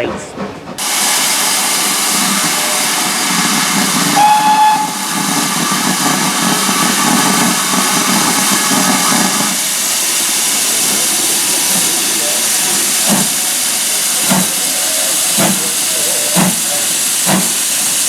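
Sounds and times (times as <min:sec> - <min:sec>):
steam locomotive hiss and exhaust: 0:00.8 - 0:18.0
steam whistle blast: 0:04.1 - 0:05.1.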